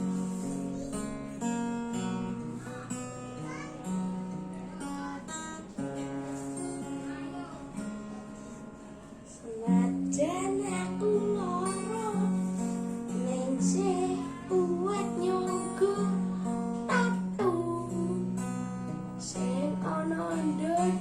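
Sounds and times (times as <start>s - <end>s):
acoustic guitar strummed and picked: 0.0s - 21.0s
young person singing: 2.6s - 3.8s, 9.3s - 21.0s.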